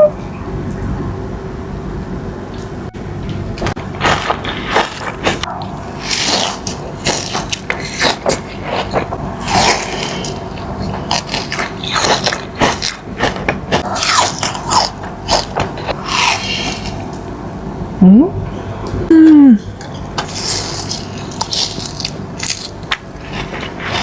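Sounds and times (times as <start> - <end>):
chewing crunchy cookie: 3.3 - 17.2, 19.8 - 24.0.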